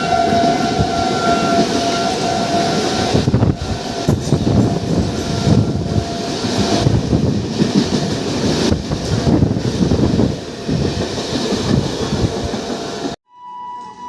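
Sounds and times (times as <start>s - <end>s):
train wheels clattering over rail joints: 3.2s - 13.1s.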